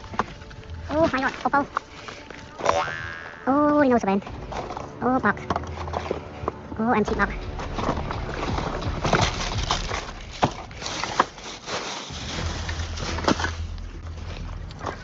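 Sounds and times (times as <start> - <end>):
rummaging through phones and boxes: 0.0 - 2.6, 4.0 - 15.0.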